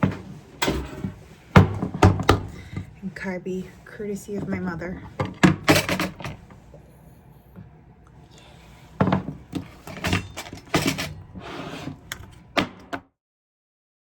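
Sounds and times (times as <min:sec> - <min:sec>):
objects knocking and clattering: 0:00.0 - 0:02.9, 0:04.3 - 0:06.6, 0:09.0 - 0:11.3.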